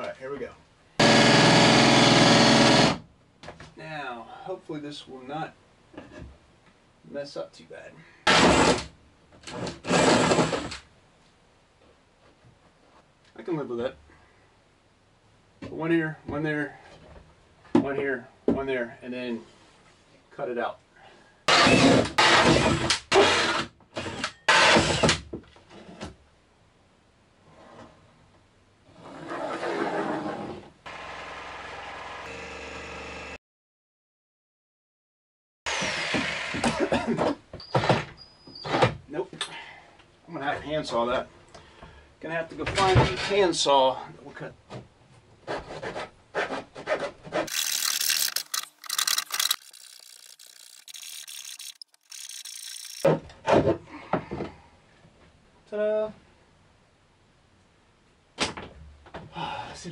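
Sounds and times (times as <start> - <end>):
power tool working into wood: 1.0 - 3.0, 47.5 - 53.1.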